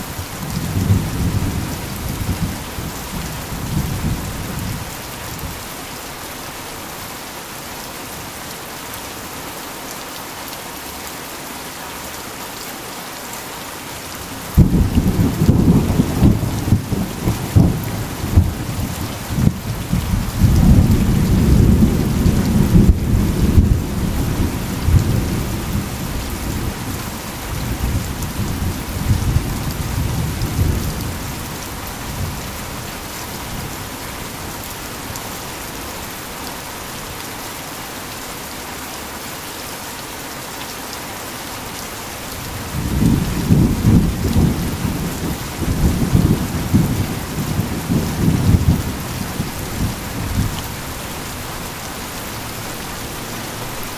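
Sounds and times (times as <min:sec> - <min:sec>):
heavy rain falling: 0:00.0 - 0:53.9
rolling thunder: 0:14.5 - 0:26.7, 0:42.7 - 0:50.6.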